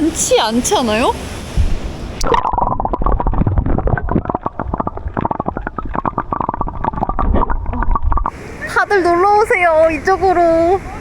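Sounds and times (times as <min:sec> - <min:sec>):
underwater bubbling and gurgling: 0:01.6 - 0:08.4.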